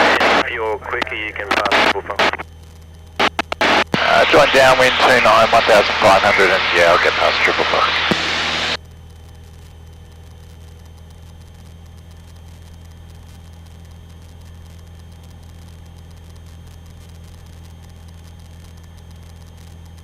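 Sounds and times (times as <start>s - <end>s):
propeller aircraft engine droning: 0.0s - 20.0s.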